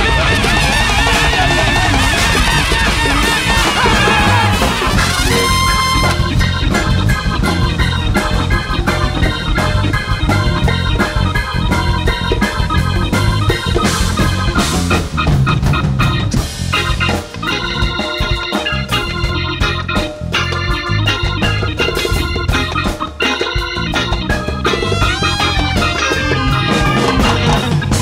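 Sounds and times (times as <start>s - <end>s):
organ-toned keyboard chords: 0.0s - 28.0s
steady drum beat: 0.0s - 28.0s.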